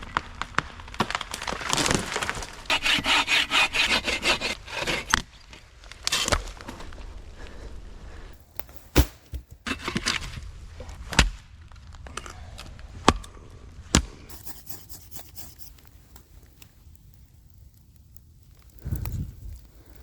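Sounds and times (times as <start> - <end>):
blade chopping strikes: 8.6 - 9.5
scraping and rustling: 14.3 - 17.6.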